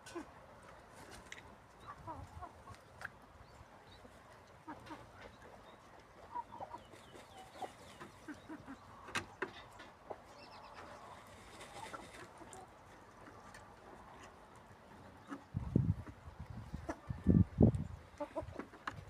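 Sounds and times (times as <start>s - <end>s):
chickens clucking softly: 0.0s - 19.0s.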